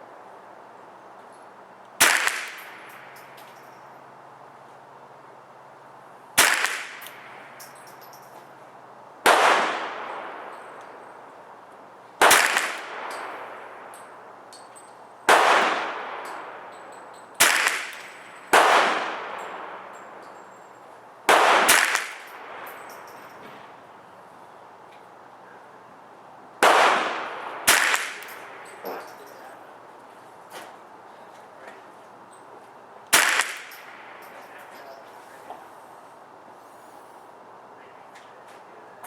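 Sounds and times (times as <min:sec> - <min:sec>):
rifle shots: 0:02.0 - 0:03.2, 0:06.4 - 0:07.6, 0:09.2 - 0:10.8, 0:12.2 - 0:13.8, 0:15.3 - 0:16.7, 0:17.4 - 0:20.1, 0:21.3 - 0:23.2, 0:26.6 - 0:29.2, 0:33.1 - 0:34.4.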